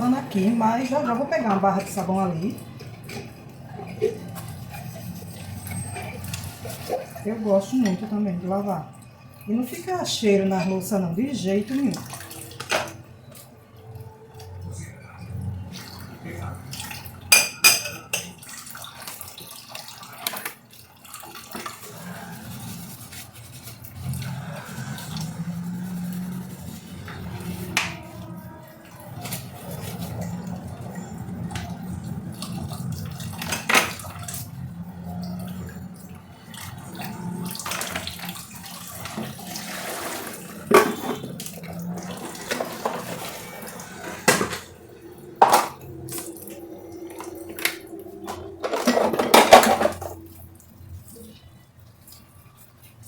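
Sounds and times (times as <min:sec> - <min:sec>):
tap water running: 0:00.0 - 0:53.0
glass and crockery clinking: 0:16.7 - 0:18.5.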